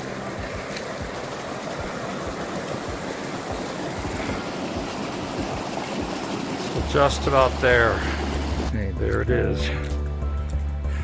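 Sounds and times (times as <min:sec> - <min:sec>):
creek water rushing: 0:00.0 - 0:08.8.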